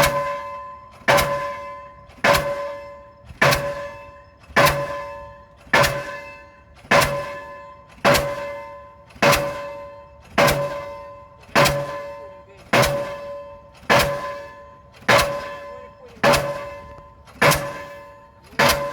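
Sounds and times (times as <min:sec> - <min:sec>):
pile hammer striking: 0:06.9 - 0:08.5, 0:10.4 - 0:11.0, 0:11.6 - 0:12.1, 0:12.7 - 0:14.5, 0:15.1 - 0:18.9.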